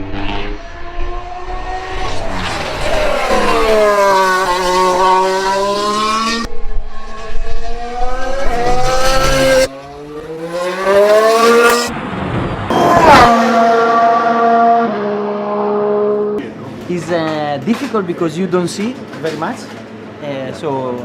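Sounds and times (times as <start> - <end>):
racing car engine at speed: 0.0 - 16.6.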